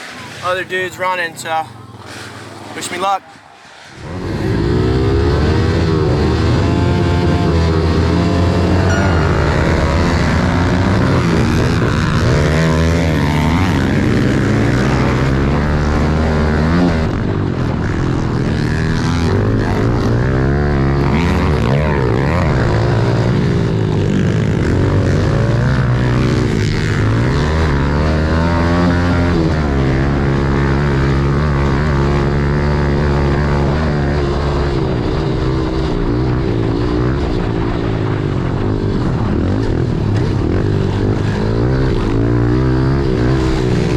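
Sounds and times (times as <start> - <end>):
pit bike engine revving: 3.7 - 37.9.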